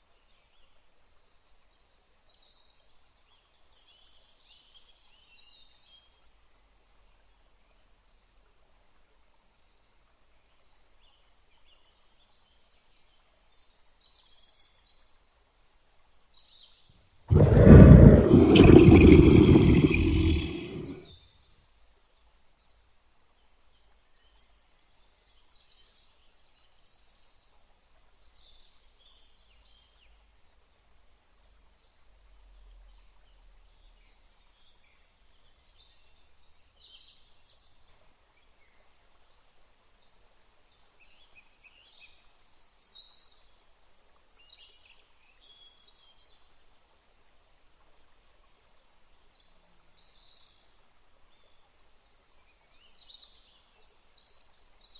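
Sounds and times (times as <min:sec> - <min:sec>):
faint low rumble: 0:17.3 - 0:21.1.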